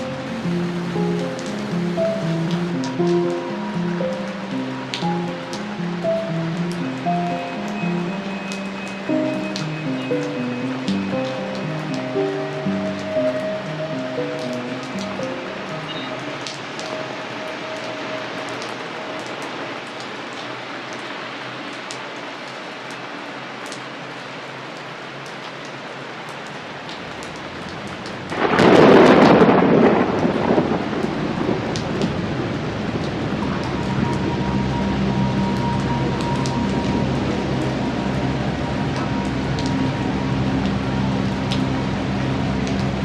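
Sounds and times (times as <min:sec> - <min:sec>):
raindrops ticking: 0:00.0 - 0:21.1, 0:25.2 - 0:43.0
steady rain falling: 0:00.0 - 0:43.0
thunder clap and rumble: 0:00.3 - 0:02.9, 0:27.5 - 0:43.0.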